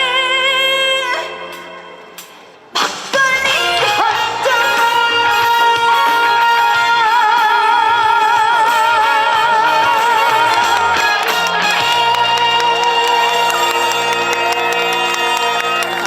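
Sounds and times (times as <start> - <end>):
backing track music: 0.0 - 16.0
woman singing long high note: 3.3 - 16.0.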